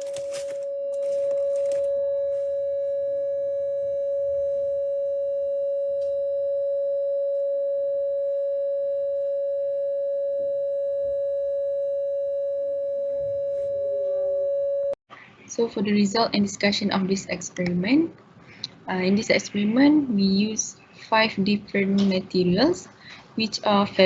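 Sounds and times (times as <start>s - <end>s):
electronic test tone: 0.0s - 15.0s.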